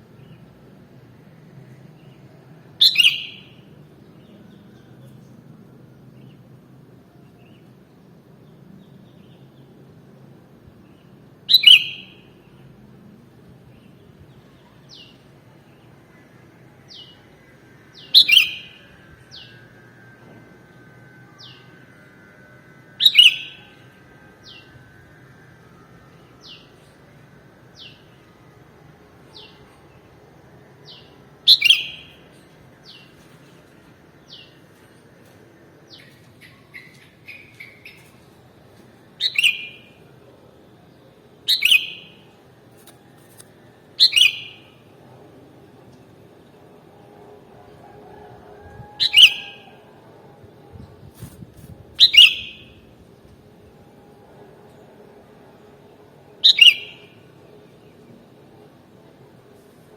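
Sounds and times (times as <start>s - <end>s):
low background hum: 0.0s - 59.9s
bird calling loudly: 49.0s - 49.8s, 52.0s - 52.7s.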